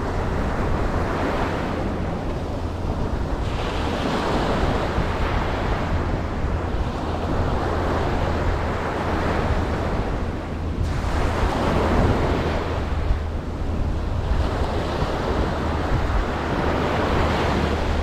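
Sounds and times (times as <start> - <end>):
ocean surf washing onto beach: 0.0 - 18.0
waves surging in: 0.0 - 18.0.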